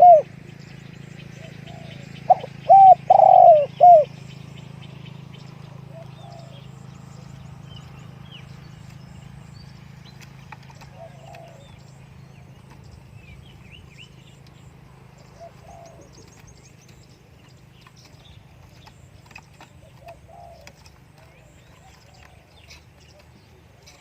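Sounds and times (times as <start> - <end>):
dove cooing: 0.0 - 0.5, 1.3 - 4.2, 5.6 - 7.3, 10.6 - 13.5, 15.0 - 24.0
small birds chirping: 0.0 - 24.0
steady low hum: 0.0 - 24.0.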